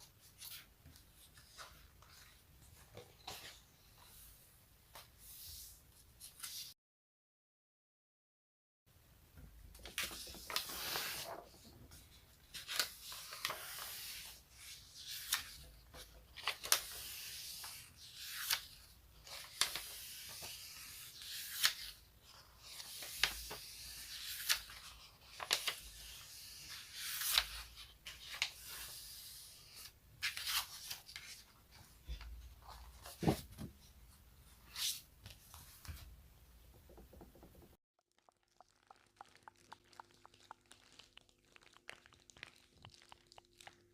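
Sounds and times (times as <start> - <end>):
sticky material peeling apart: 38.5 - 43.9.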